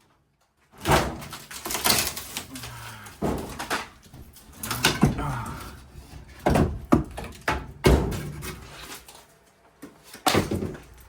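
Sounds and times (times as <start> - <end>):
metal ductwork knocking and clanking: 3.2 - 8.8.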